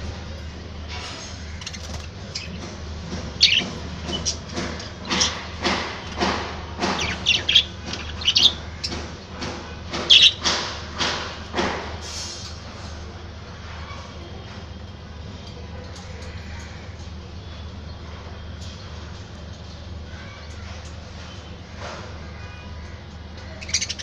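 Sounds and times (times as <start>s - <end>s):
budgerigars chattering: 3.4s - 4.4s, 6.9s - 9.0s, 10.1s - 10.4s, 22.9s - 24.0s.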